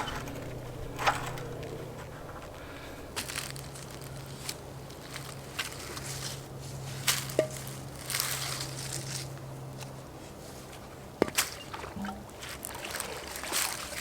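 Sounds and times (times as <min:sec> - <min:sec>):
footsteps: 0:00.0 - 0:03.4
low steady hum: 0:00.0 - 0:07.8
handling knocks and rustling: 0:00.0 - 0:09.9.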